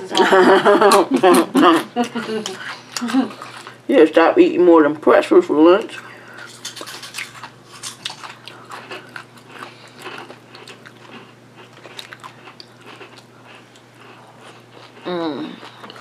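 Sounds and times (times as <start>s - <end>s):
chewing with mouth clicks: 2.0s - 3.8s, 5.8s - 16.0s.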